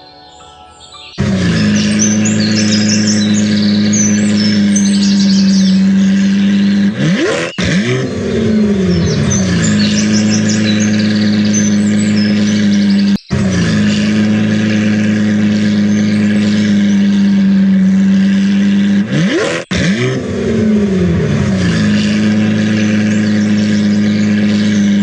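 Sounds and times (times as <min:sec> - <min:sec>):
high chirps: 0:00.0 - 0:14.4
vehicle engine idling and revving: 0:00.0 - 0:25.0.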